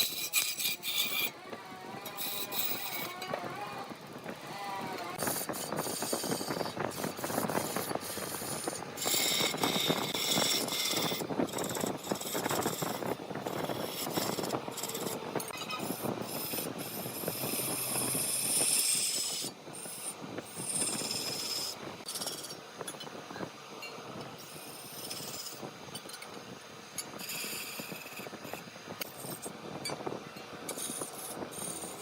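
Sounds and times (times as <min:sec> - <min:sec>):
wood lathe rattling and scraping: 0:00.0 - 0:22.5.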